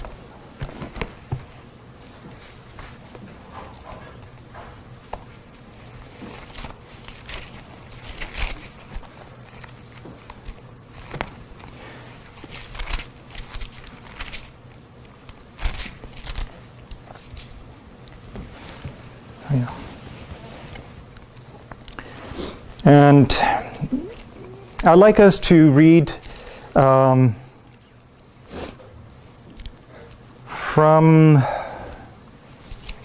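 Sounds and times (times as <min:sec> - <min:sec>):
faint low hum: 0:00.0 - 0:33.0
pages rustling and flicking: 0:05.3 - 0:14.6, 0:15.3 - 0:17.7.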